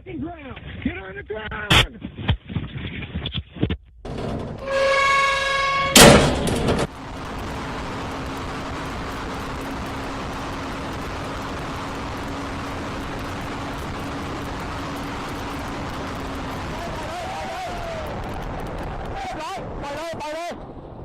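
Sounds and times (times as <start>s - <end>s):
loud noisy burst: 5.8s - 20.0s
steady rushing noise: 5.9s - 21.0s.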